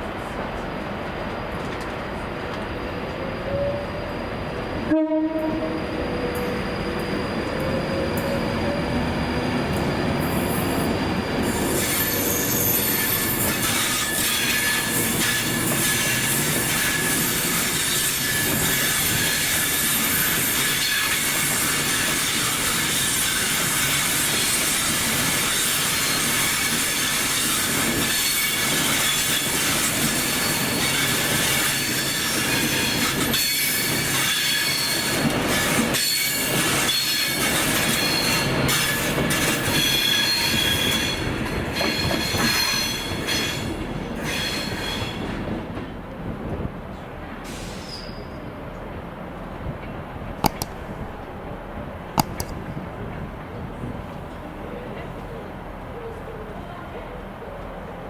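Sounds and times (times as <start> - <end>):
train rail noise: 0.0 - 58.0
wheel squeal: 5.7 - 24.1, 25.5 - 45.2, 47.5 - 48.4.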